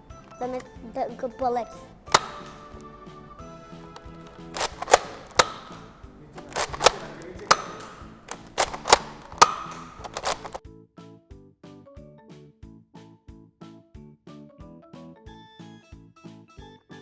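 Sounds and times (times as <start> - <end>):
toy blaster firing darts: 2.1 - 2.9, 3.9 - 10.6.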